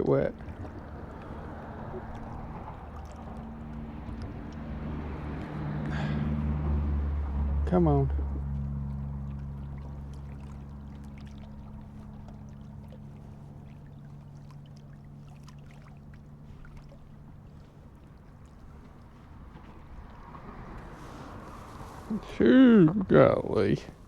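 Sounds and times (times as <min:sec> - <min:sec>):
distant motor droning: 0:00.0 - 0:24.0.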